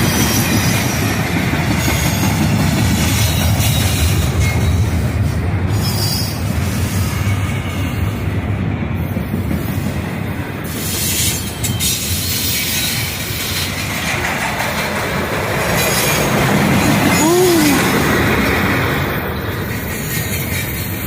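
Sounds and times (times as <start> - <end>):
freight train wheels on rail: 0.0 - 21.0.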